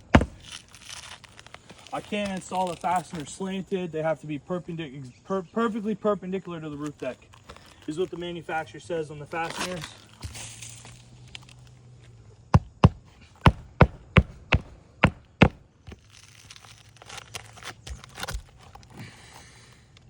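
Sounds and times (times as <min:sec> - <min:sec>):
rustling: 0:00.0 - 0:03.4
hammer driving nails into roof: 0:12.6 - 0:15.6.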